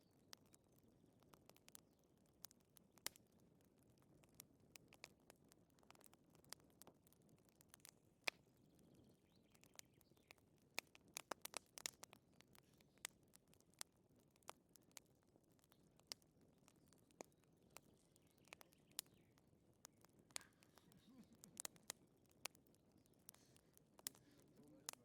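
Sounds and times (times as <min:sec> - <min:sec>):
wood fire crackling: 0:00.0 - 0:25.0
faint low hiss: 0:15.2 - 0:25.0.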